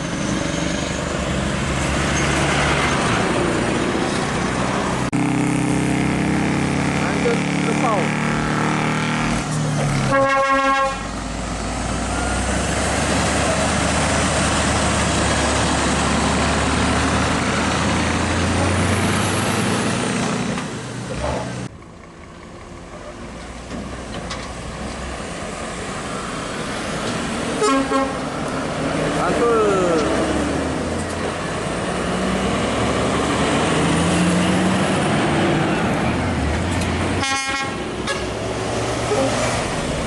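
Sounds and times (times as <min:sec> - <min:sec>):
truck engine and tyres passing: 0:00.0 - 0:40.0
truck horn: 0:10.0 - 0:11.1, 0:27.6 - 0:28.3, 0:37.2 - 0:38.4.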